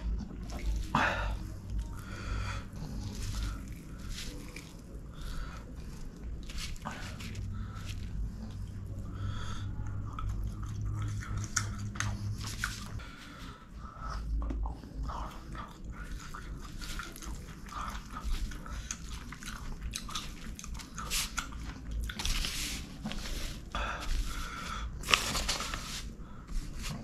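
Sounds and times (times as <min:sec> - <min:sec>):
person chewing food: 0:00.0 - 0:27.0
rustling: 0:21.0 - 0:27.0.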